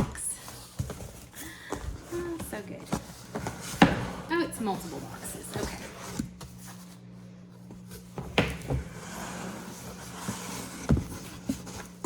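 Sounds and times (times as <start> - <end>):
cardboard rustling: 0.0 - 12.0.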